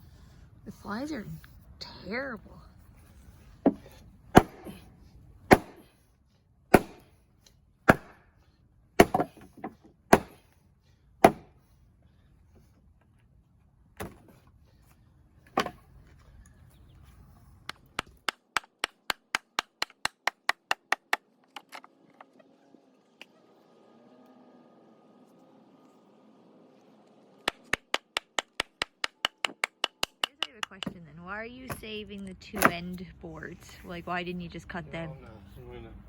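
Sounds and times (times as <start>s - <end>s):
hammer striking wooden boards: 4.4s - 4.8s, 5.5s - 5.9s, 6.7s - 7.1s, 7.9s - 8.2s, 9.0s - 10.4s, 11.2s - 11.5s, 27.5s - 31.0s.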